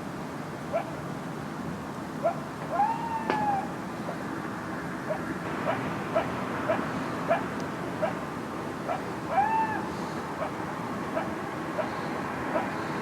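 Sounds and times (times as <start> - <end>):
coyotes barking: 0.7 - 1.0, 2.2 - 4.2, 5.0 - 13.0
coyote howl: 2.2 - 4.2, 5.1 - 8.2, 8.8 - 12.8.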